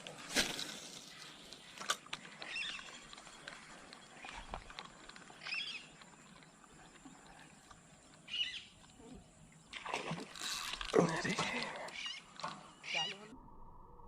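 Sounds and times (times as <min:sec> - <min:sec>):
bird chirping: 0:01.2 - 0:04.7, 0:05.3 - 0:07.0, 0:08.2 - 0:09.7, 0:11.9 - 0:13.4.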